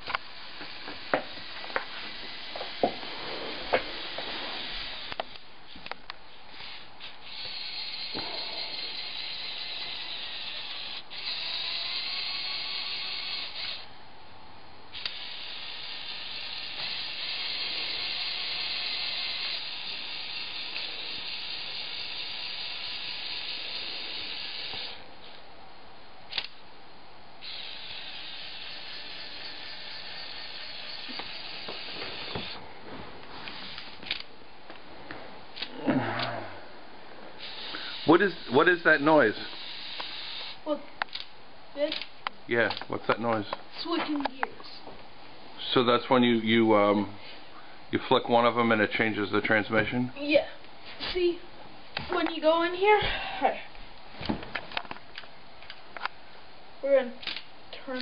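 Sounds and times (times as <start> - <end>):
toy motors and gears whirring: 0.0 - 5.4, 6.5 - 13.9, 14.9 - 25.4, 26.3 - 26.6, 27.4 - 32.6, 33.4 - 34.3, 37.4 - 44.8, 56.8 - 58.0
sharp clicks: 26.3 - 26.6, 40.0 - 43.5, 57.2 - 58.0.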